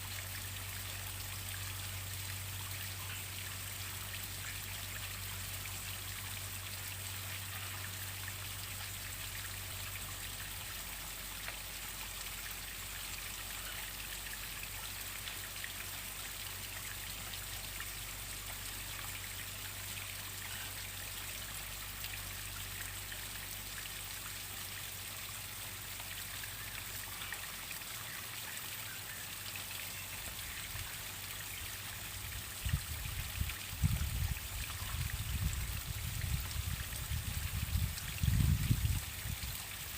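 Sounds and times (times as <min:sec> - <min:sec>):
wind rumble on microphone: 0:32.4 - 0:39.7.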